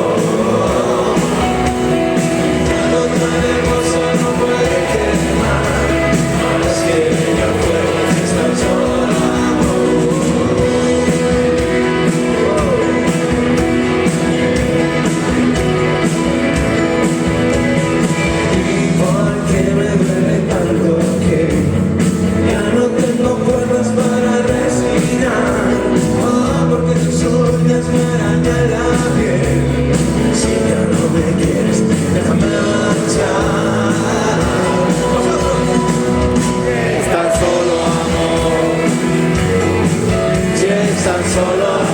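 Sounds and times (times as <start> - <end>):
person singing: 0.0 - 17.3, 17.9 - 41.9
live rock band playing: 0.0 - 41.9.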